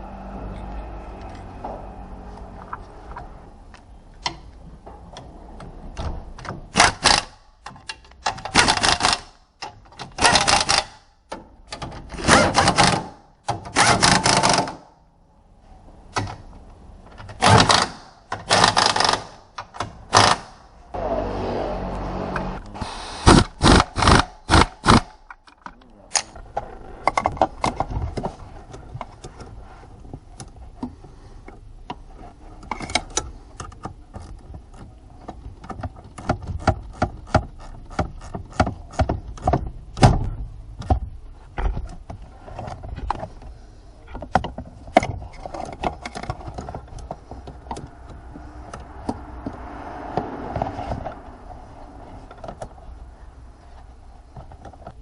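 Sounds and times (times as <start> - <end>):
rapid mechanical clicking: 23.2 - 25.2.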